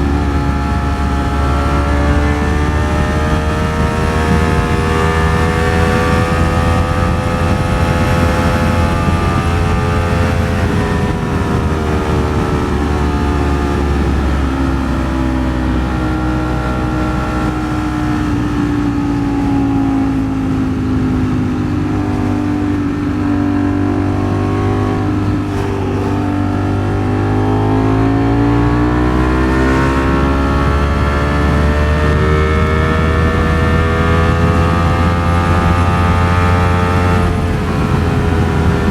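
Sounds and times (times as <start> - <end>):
motorcycle engine pulling: 0.0 - 38.9.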